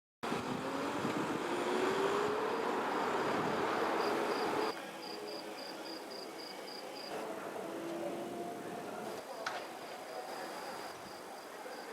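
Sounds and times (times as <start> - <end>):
vehicle passing by: 0.2 - 4.8
crickets chirping: 2.4 - 7.2, 9.2 - 11.9.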